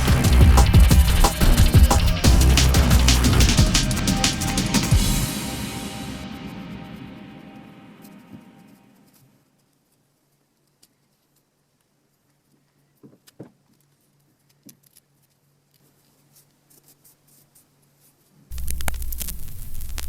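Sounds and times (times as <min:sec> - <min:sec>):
loud music: 0:00.0 - 0:08.8.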